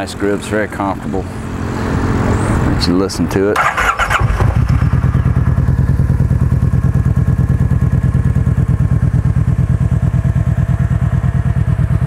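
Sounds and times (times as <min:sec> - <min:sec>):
motorcycle engine idling: 0:03.3 - 0:12.0.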